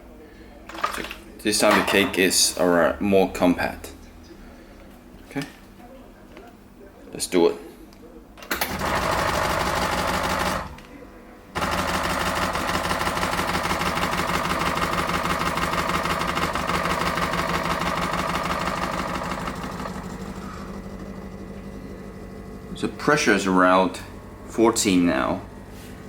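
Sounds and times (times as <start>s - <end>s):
espresso machine pump buzzing: 8.7s - 10.7s, 11.6s - 26.0s.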